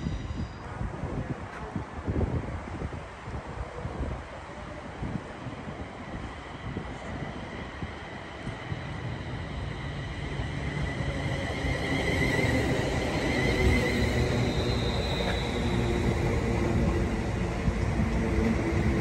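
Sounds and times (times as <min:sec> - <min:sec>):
train wheels rumbling on rails: 0:05.1 - 0:19.0.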